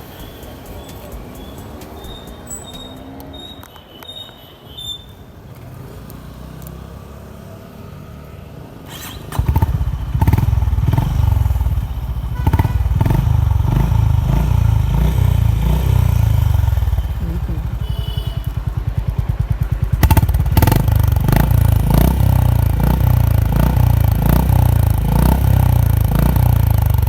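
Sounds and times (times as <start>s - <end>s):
motorcycle engine deep pulsing beat: 0.0s - 3.2s, 9.4s - 27.0s.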